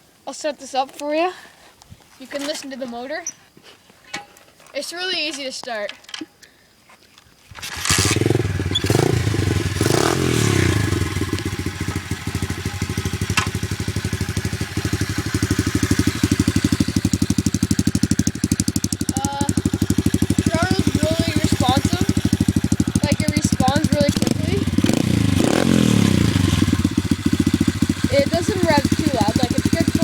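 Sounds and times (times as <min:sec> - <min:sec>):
dirt bike engine revving and idling: 0:07.6 - 0:30.0.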